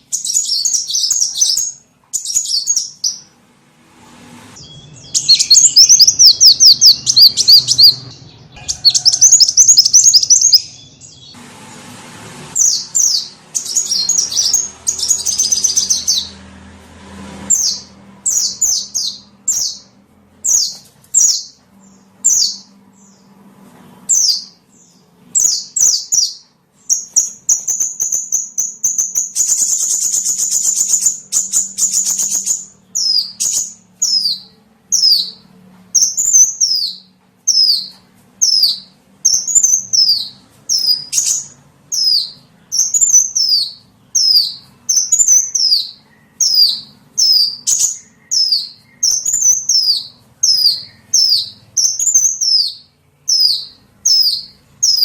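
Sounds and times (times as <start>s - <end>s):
songbird calls: 4.6s - 11.4s, 12.6s - 16.4s, 36.0s - 55.0s.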